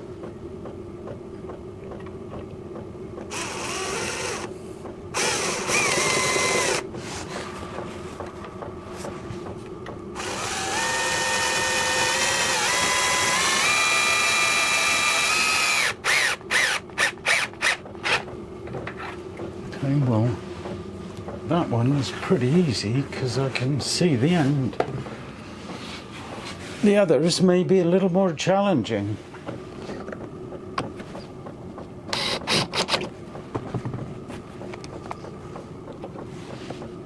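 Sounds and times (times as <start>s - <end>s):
power drill driving a screw: 3.3s - 4.5s, 5.2s - 6.8s, 10.2s - 18.2s, 32.2s - 33.0s.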